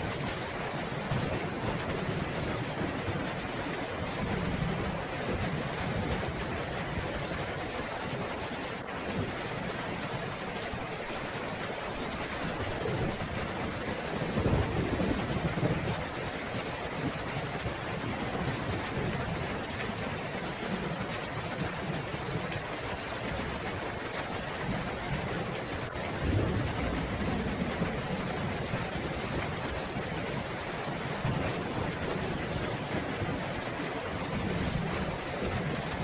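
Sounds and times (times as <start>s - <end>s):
heavy rain hissing: 23.2s - 36.0s
thunder rumbling: 26.0s - 30.4s.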